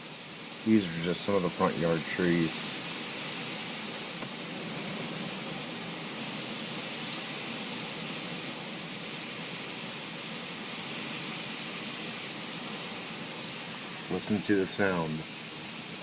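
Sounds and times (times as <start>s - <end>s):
hurricane rain and wind: 0.0s - 16.0s.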